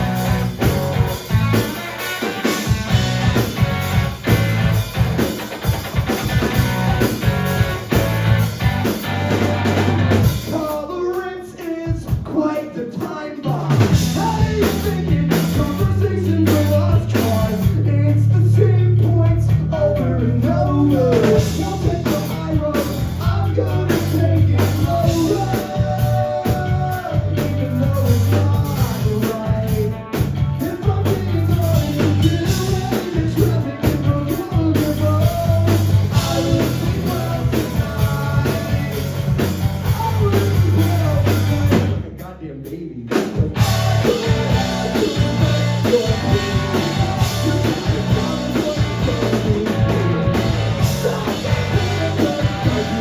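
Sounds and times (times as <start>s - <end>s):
live rock band playing: 0.0s - 42.2s, 43.1s - 53.0s
drum kit: 0.0s - 53.0s
person singing: 10.4s - 30.0s, 30.6s - 53.0s.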